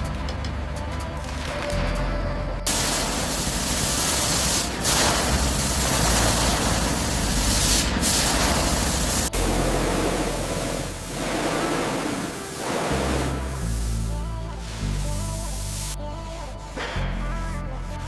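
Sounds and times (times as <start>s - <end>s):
loud spraying hiss: 2.7s - 16.0s.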